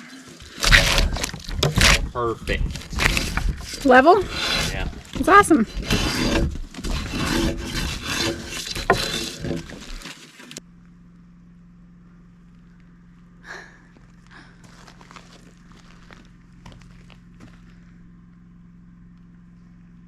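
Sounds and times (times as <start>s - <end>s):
steady low hum: 0.1s - 10.0s, 10.6s - 20.0s
timber knocking and scraping: 0.4s - 10.6s.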